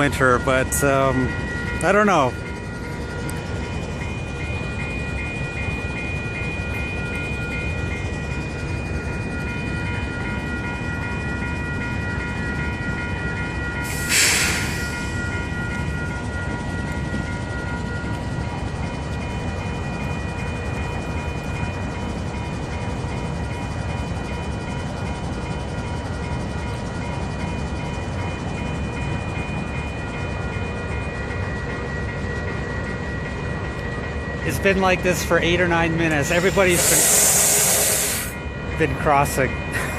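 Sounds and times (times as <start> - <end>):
diesel locomotive idling: 0.0 - 39.9
level-crossing warning bell ringing: 0.0 - 39.9
low rumble of stopped train: 0.0 - 39.9
thin high whines: 35.8 - 38.5
loud hiss: 36.4 - 38.4.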